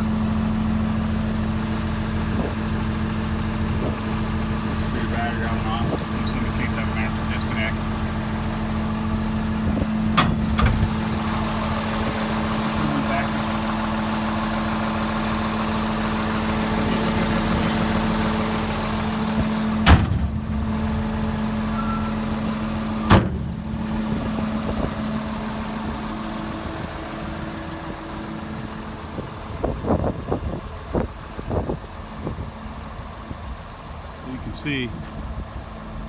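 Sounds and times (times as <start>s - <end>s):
diesel engine idling: 0.0s - 36.0s
sharp bangs: 16.9s - 24.4s.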